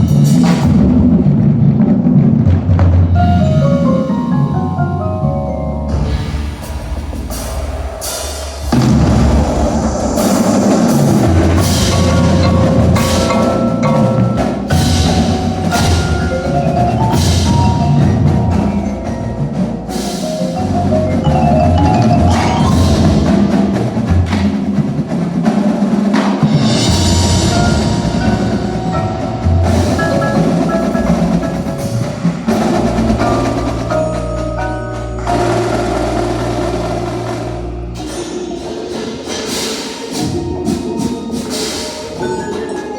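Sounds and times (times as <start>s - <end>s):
drum hits: 0.0s - 39.5s
marimbas playing melody: 3.2s - 6.7s, 10.2s - 25.2s, 26.1s - 42.9s
low bass notes: 10.9s - 24.4s, 26.8s - 38.1s.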